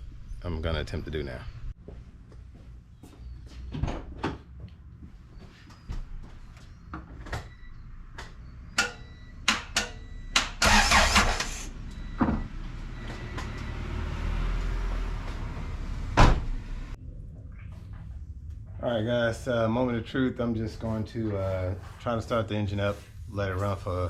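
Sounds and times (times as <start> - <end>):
sharp clicks and knocks: 8.2 - 10.6
starter motor cranking engine: 10.6 - 11.7.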